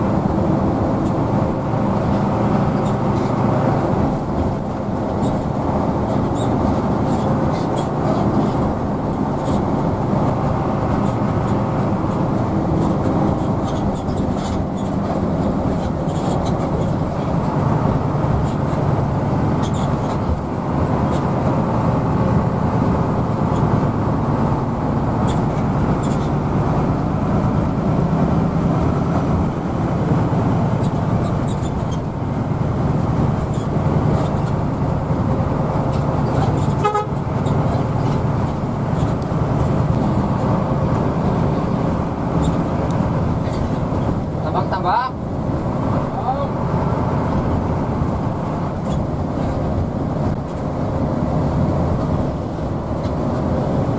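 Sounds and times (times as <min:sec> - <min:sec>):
bus diesel engine running: 0:00.0 - 0:53.9
vehicle horn honk: 0:36.8 - 0:37.2.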